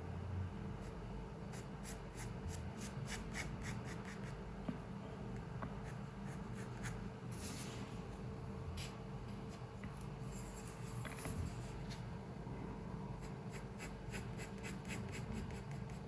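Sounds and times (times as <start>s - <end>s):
low room hum: 0.0s - 16.0s
pencil scratching on paper: 13.2s - 16.0s.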